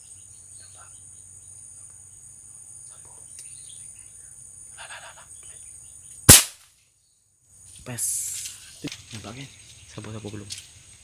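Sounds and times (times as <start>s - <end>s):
faint bird chirps: 0.0s - 6.3s
high insect drone: 0.0s - 11.0s
air rifle shot: 6.3s - 6.6s.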